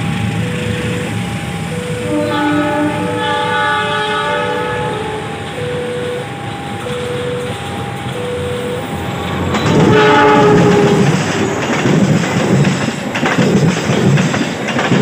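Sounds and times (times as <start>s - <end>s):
diesel locomotive engine rumble: 0.0s - 15.0s
train wheel noise: 0.0s - 15.0s
multi-note train horn: 1.8s - 7.9s, 9.6s - 11.2s.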